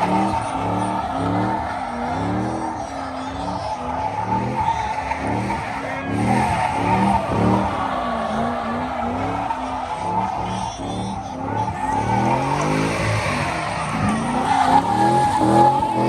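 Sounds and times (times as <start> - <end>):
car tires squealing: 0.0 - 16.0
engine revving: 0.0 - 16.0.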